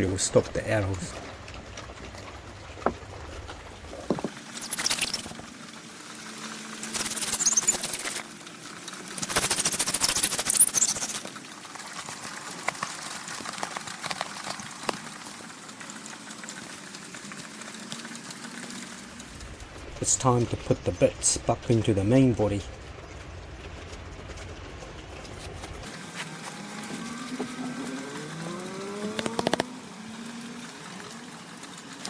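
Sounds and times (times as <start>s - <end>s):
foam scratching and scraping: 3.6s - 20.5s, 23.9s - 29.8s.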